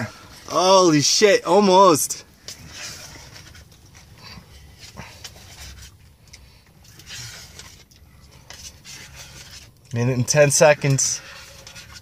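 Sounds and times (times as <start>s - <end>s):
spoon scraping in cup: 6.8s - 9.8s, 10.8s - 12.0s.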